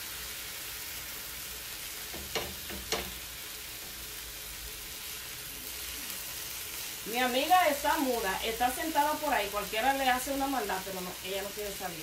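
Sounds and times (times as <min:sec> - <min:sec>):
chicken sizzling on a griddle: 0:00.0 - 0:12.0
tongs clacking against griddle: 0:02.1 - 0:03.2.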